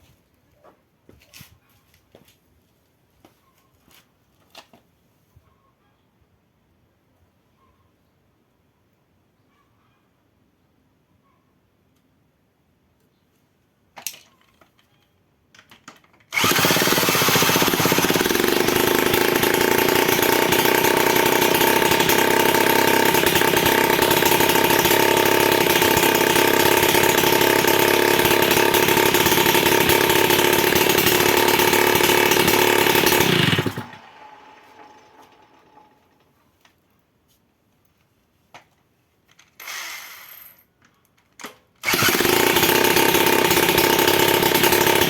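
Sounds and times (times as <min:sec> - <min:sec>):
power tool running: 0:16.3 - 0:36.0, 0:41.8 - 0:45.0.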